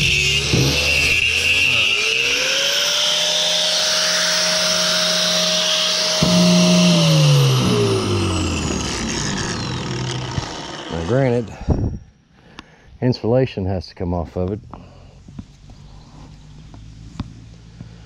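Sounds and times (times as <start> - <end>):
power tool cutting metal: 0.0 - 11.5.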